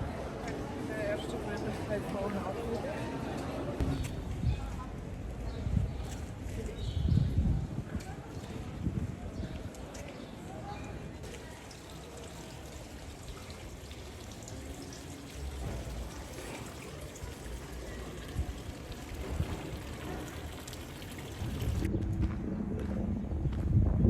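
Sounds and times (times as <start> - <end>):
running water splashing: 11.2 - 21.9.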